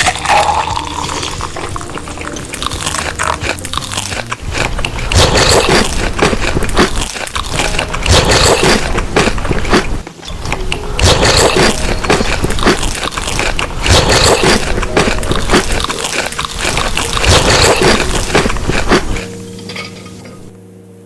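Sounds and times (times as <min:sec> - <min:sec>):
chewing crunchy food: 0:00.0 - 0:20.5
held musical tones: 0:08.7 - 0:13.9.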